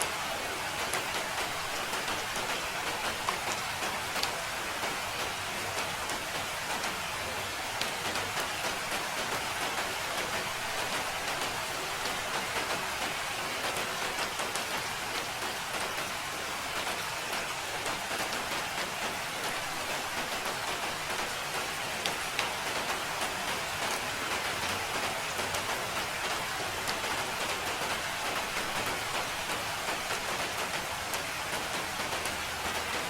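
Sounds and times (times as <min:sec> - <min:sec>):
steady rain hiss: 0:00.0 - 0:33.0
raindrop ticks: 0:00.8 - 0:07.1, 0:07.8 - 0:16.1, 0:16.8 - 0:33.0.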